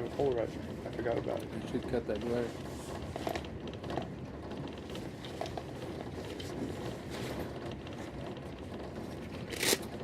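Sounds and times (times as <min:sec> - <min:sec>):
train rumble inside carriage: 0:00.0 - 0:10.0.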